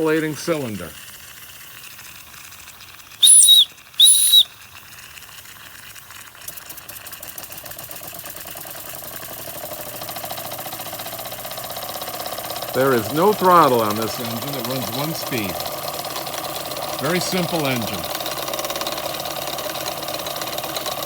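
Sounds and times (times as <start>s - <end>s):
steam engine chuffing: 0.0s - 21.0s
toy steam whistle toots: 3.1s - 4.9s.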